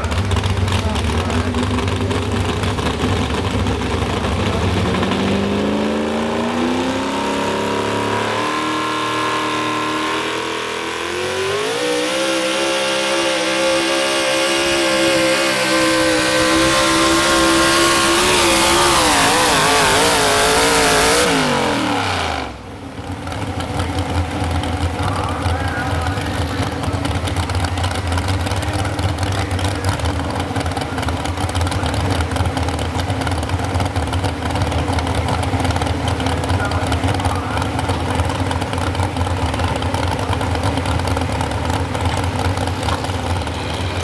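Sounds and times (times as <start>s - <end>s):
truck engine revving under load: 0.0s - 44.0s.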